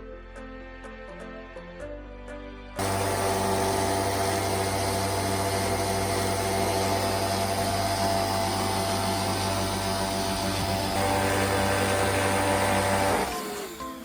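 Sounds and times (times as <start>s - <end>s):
vacuum cleaner running: 2.8s - 14.0s.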